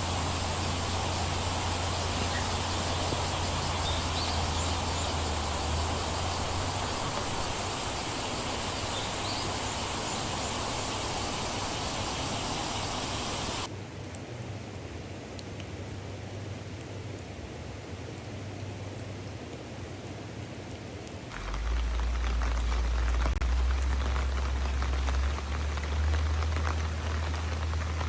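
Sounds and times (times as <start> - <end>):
rain falling: 0.0 - 28.0
low rumble: 21.3 - 28.0.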